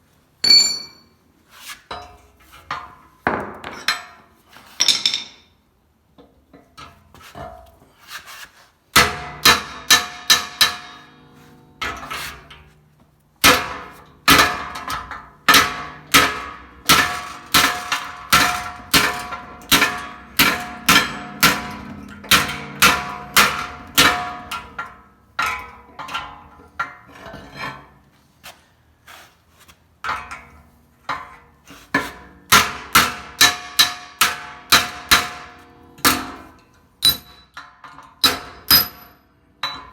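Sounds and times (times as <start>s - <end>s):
hammer striking sheet steel: 8.9s - 12.6s, 13.4s - 26.4s, 31.9s - 39.8s.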